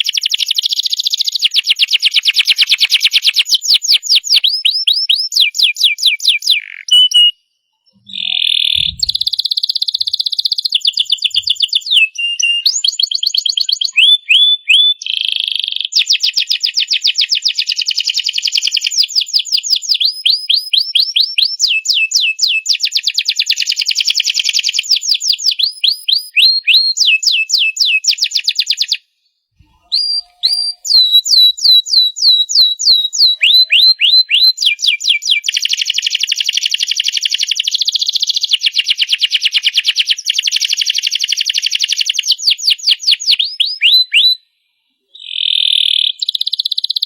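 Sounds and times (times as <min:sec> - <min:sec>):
canary singing trills: 0:00.0 - 0:15.2, 0:29.6 - 0:36.2.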